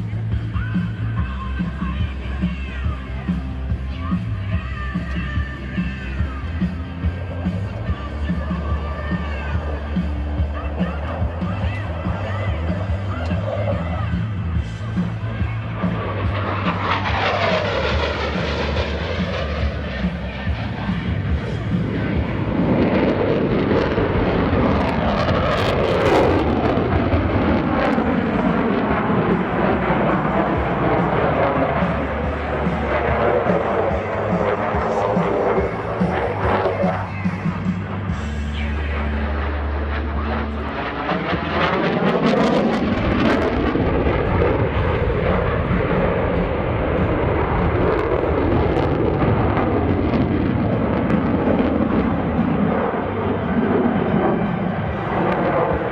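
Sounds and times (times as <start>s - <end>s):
jet roar of aircraft in flight: 0.0s - 55.9s.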